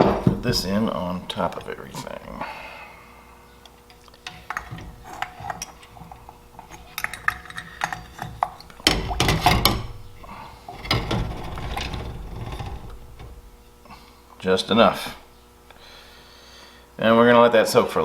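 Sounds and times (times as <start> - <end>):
small metal parts clinking: 3.9 - 13.4.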